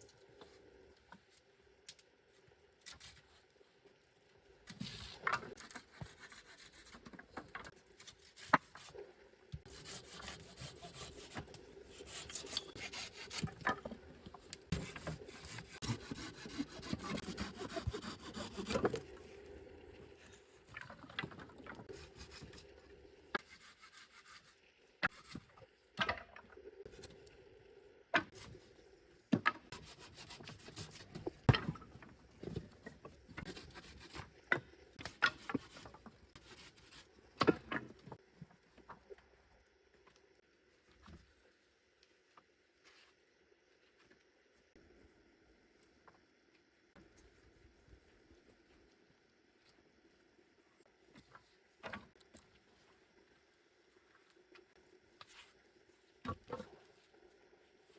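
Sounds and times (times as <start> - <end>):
wood scraping and rasping: 9.7 - 13.9, 14.7 - 19.2.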